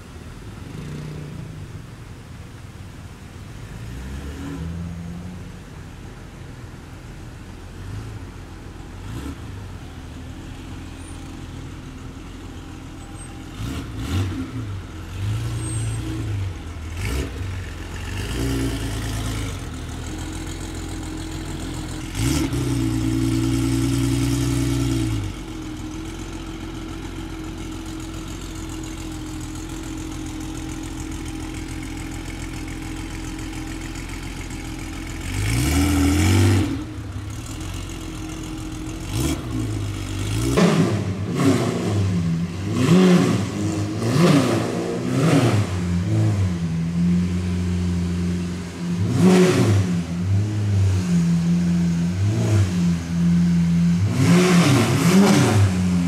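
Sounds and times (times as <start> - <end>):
car engines idling: 0.0 - 3.9, 4.7 - 56.0
sports car engine revving: 13.5 - 56.0.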